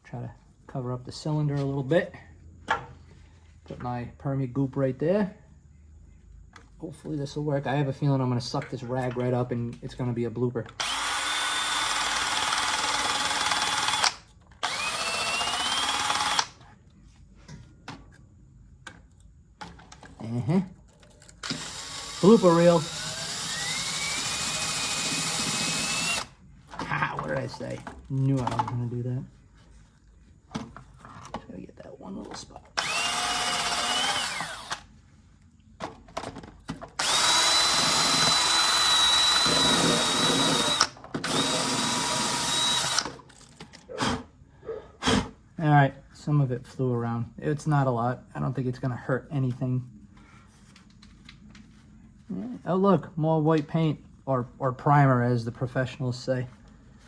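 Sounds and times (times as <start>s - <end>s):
drill spinning wire brush on metal: 10.8s - 16.6s, 21.4s - 26.4s, 32.8s - 34.9s, 37.0s - 43.4s.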